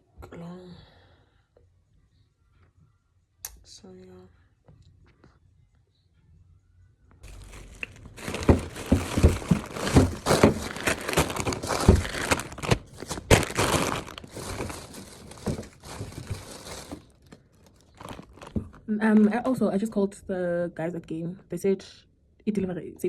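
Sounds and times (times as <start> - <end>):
knocks of items moved: 7.2 - 18.8
plastic bags rustling: 7.2 - 18.9.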